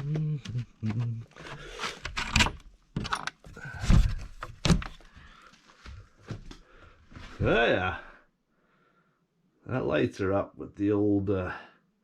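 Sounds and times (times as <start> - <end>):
door handling knocks and rattles: 2.0 - 5.1.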